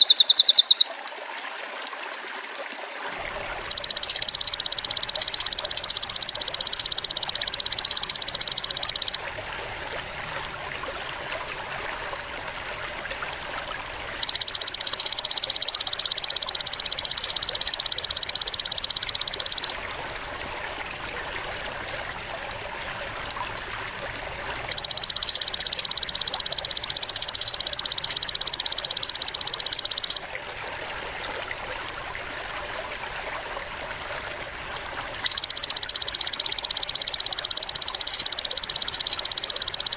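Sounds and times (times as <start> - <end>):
bird calls: 0.0 - 0.9
faint trickling water: 0.0 - 39.9.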